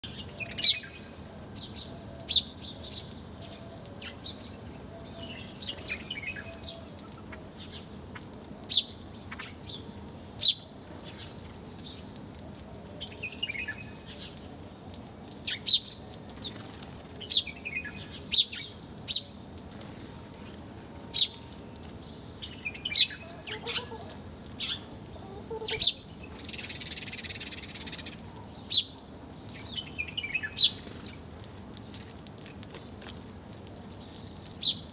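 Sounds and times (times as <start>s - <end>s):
small songbirds chirping: 0.0s - 34.9s
flutter of wings: 16.3s - 17.4s.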